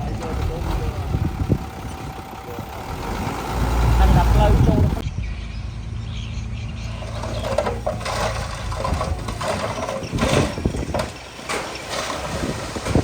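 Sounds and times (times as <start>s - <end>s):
diesel engine running: 0.0s - 13.0s
metallic clanks and rattles: 7.0s - 13.0s.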